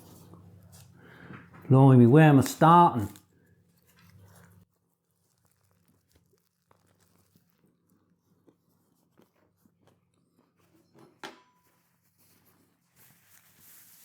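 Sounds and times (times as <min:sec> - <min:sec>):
chewing with mouth clicks: 0:05.2 - 0:10.8.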